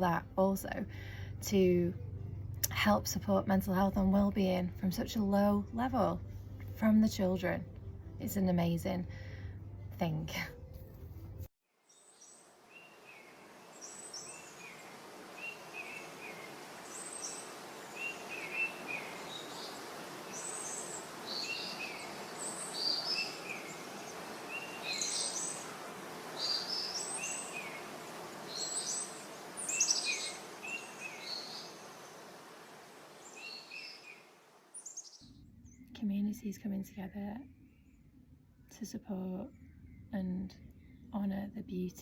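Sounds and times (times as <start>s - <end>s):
outdoor background noise: 0.0s - 42.0s
songbirds chirping and trilling: 11.9s - 36.2s.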